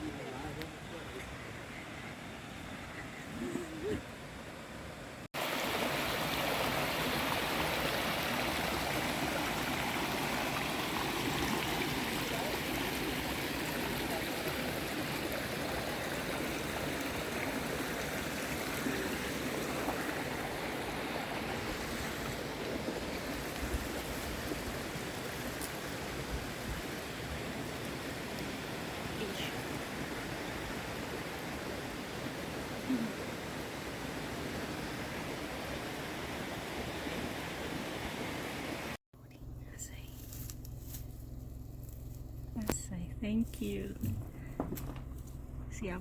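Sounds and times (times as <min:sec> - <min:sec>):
quiet outdoor ambience: 0:00.0 - 0:46.0
rush of flowing water: 0:05.1 - 0:39.0.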